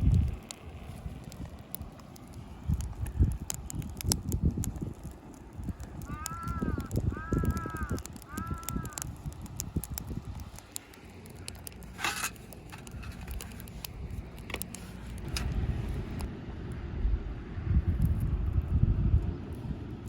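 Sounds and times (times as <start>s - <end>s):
campfire crackling and popping: 0.0s - 16.3s
low rumble: 15.1s - 20.0s.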